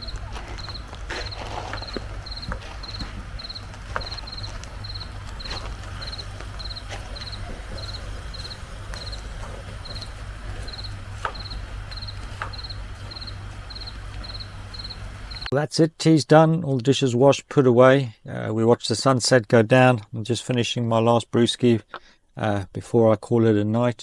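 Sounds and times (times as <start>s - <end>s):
cricket chirping: 0.0s - 15.5s
low background rumble: 0.0s - 15.5s.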